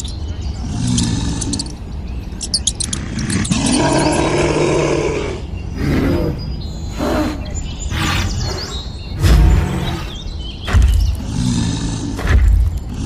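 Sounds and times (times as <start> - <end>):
animal roar: 2.9 - 13.0.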